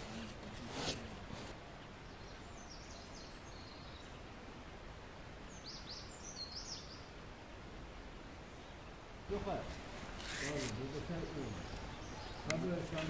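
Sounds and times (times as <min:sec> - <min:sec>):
small birds chirping: 0:00.0 - 0:07.7, 0:08.3 - 0:13.0
low outdoor background noise: 0:00.0 - 0:13.0.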